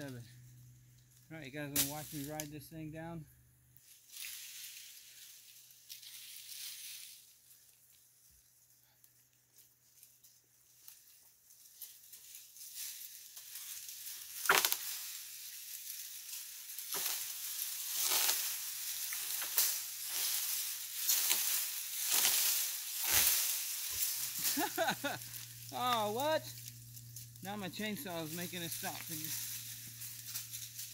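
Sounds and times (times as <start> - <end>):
branches and dry leaves rustling: 3.8 - 30.9
wood cracking: 14.2 - 15.2.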